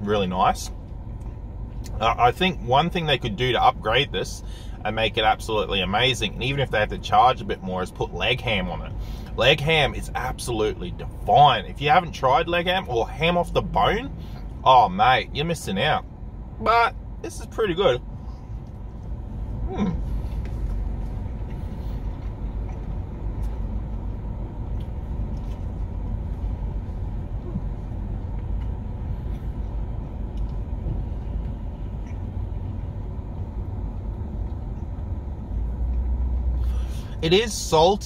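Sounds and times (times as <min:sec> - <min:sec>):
car engine idling: 0:00.0 - 0:38.0
man chewing: 0:18.5 - 0:32.9.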